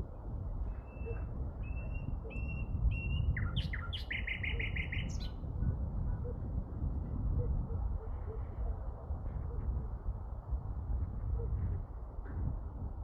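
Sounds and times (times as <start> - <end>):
songbird singing: 0.7 - 5.5.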